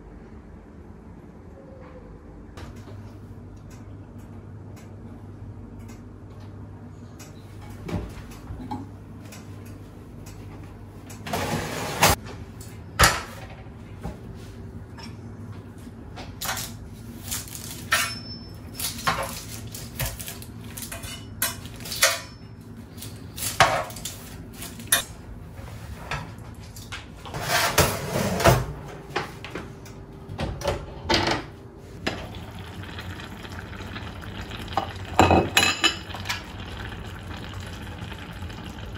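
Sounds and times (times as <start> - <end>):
dishes and utensils clinking: 35.2 - 36.3.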